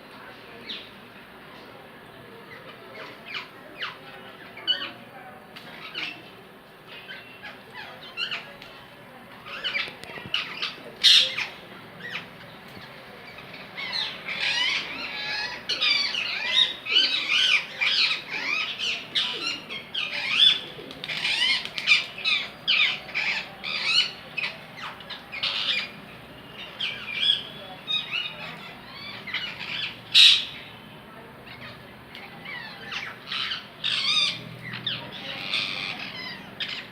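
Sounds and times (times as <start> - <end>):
parrots squawking and chirping: 6.9 - 8.5, 9.4 - 12.6, 13.2 - 30.7, 31.5 - 36.9.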